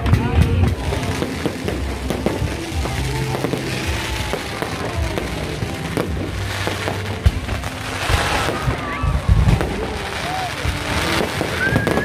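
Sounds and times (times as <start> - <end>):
fireworks bangs and crackles: 0.0 - 12.0
music playing: 0.0 - 12.0.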